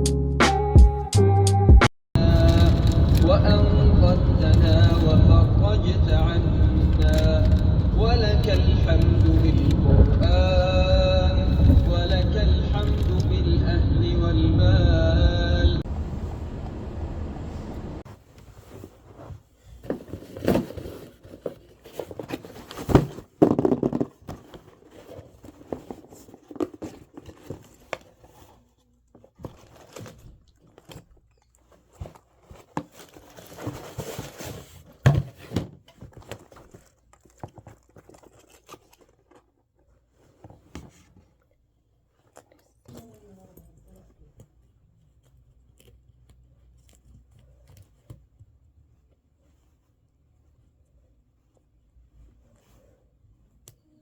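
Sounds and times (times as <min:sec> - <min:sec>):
packaging crinkling and tearing: 0:02.2 - 0:13.4, 0:29.2 - 0:35.0, 0:36.0 - 0:39.7.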